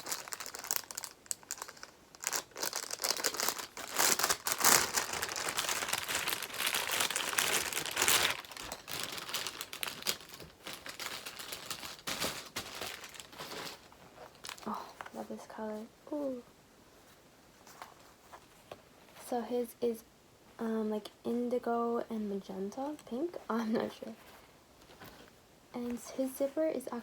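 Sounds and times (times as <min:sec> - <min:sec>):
packaging tearing: 0:00.0 - 0:14.7
packaging crinkling: 0:00.0 - 0:15.2.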